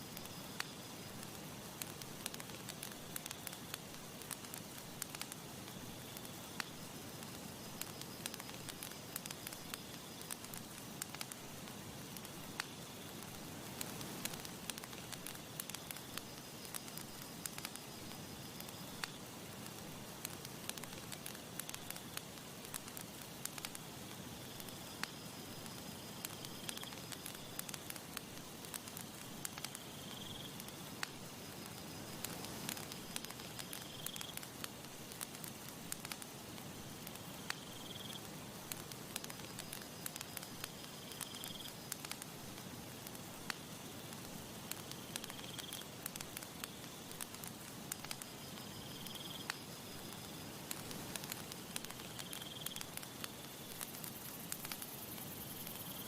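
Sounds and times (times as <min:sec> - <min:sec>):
campfire crackling: 0:00.0 - 0:56.0.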